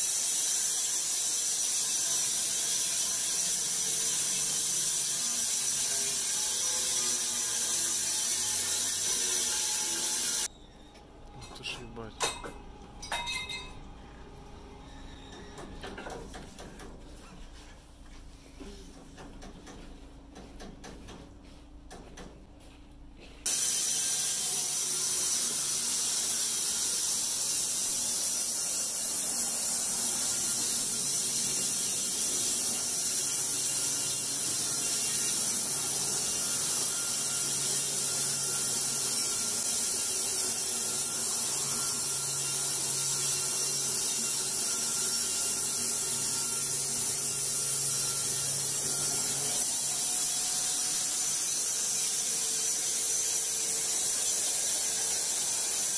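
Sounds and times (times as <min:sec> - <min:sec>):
machinery with loud high hiss: 0:23.5 - 0:43.6.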